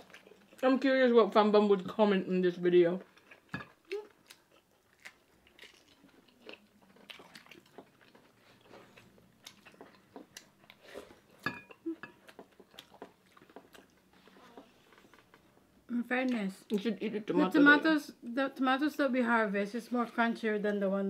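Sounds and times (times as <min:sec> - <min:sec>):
people biting and chewing food: 0:03.1 - 0:15.4.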